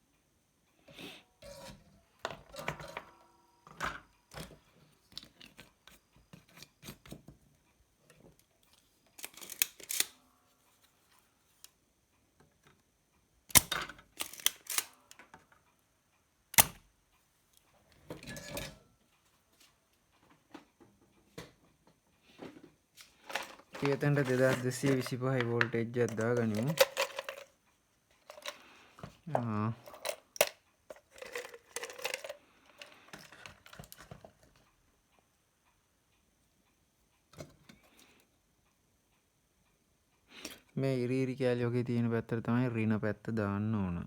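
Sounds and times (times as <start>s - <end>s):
hand tools clicking and tapping: 23.2s - 27.5s, 28.2s - 34.6s.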